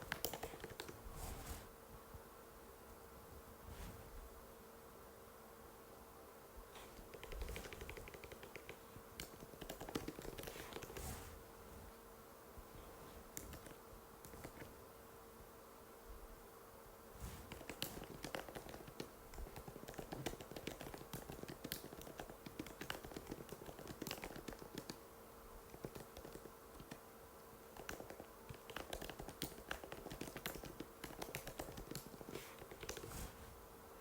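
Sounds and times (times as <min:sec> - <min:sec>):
keyboard key clicks: 0:00.0 - 0:01.0
faint steady hum: 0:00.0 - 0:34.0.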